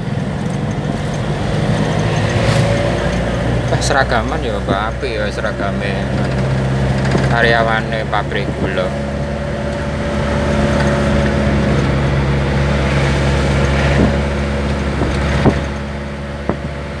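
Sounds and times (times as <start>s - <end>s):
road noise: 0.0s - 17.0s
truck engine running: 0.0s - 17.0s
sharp knocks: 9.6s - 16.8s.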